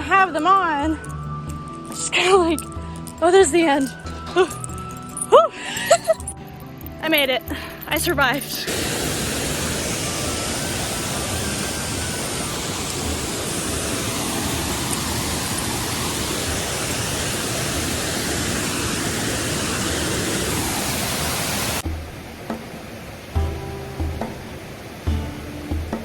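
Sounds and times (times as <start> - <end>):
waterfall roaring: 7.9 - 26.0.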